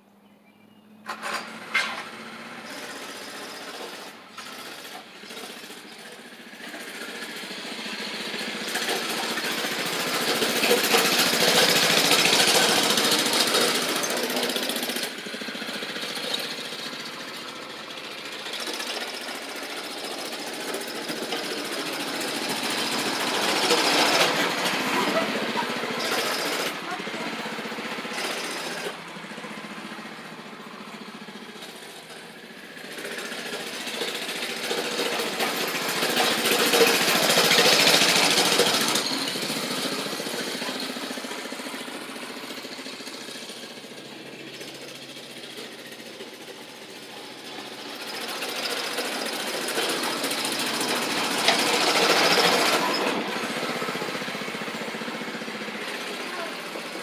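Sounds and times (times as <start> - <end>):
mini bike engine passing: 1.0 - 57.0.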